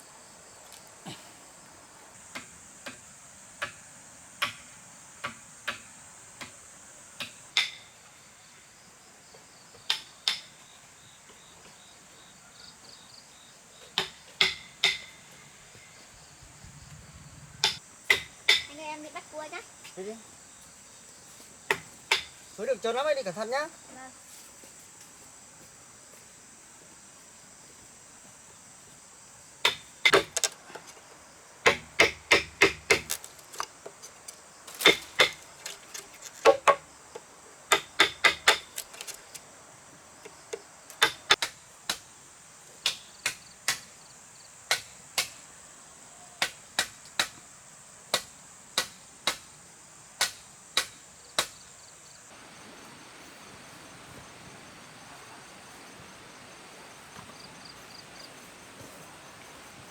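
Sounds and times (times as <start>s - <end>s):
insects droning: 0.0s - 59.9s
tool knocking on wood: 31.7s - 33.7s, 34.7s - 36.8s, 37.7s - 39.2s.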